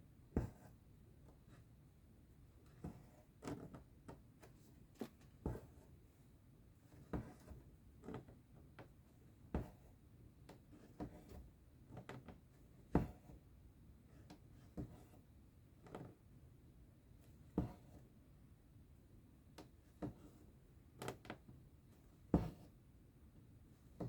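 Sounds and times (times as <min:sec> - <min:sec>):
needle tapping through fabric: 0:22.3 - 0:22.7.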